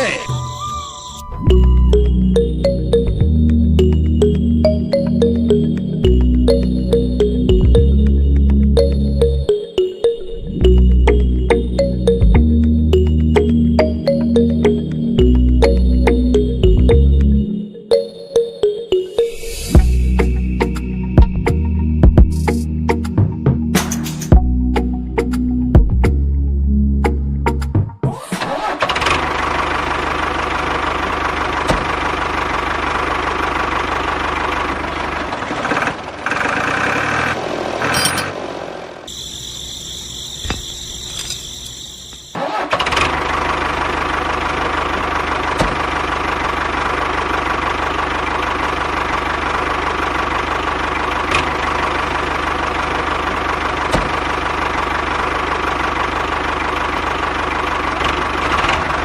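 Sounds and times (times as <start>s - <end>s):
small engine running: 28.4s - 59.0s.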